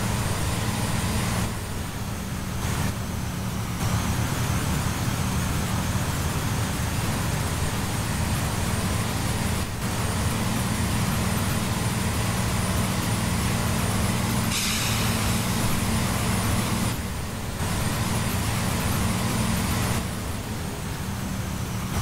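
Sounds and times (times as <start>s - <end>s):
bus engine drone: 0.0s - 22.0s
road noise: 0.0s - 22.0s
short hiss: 14.5s - 15.5s.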